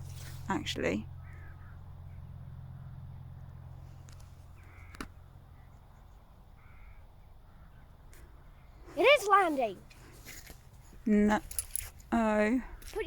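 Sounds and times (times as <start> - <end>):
distant helicopter drone: 0.0 - 10.0
bird calling: 1.1 - 3.1, 4.4 - 10.2.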